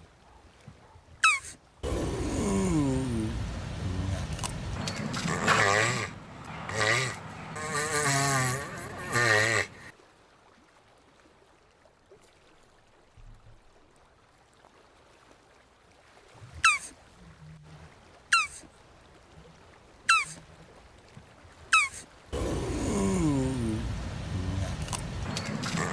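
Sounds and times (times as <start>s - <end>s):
tortoise bleat-like call: 1.2s - 9.9s, 16.6s - 16.9s, 18.3s - 18.7s, 20.1s - 20.4s, 21.7s - 25.9s.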